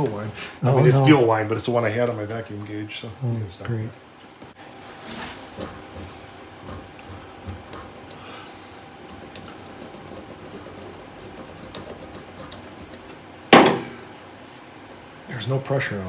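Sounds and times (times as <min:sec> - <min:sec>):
faint steady hum: 0:00.0 - 0:16.0
light rubbing: 0:04.9 - 0:13.3.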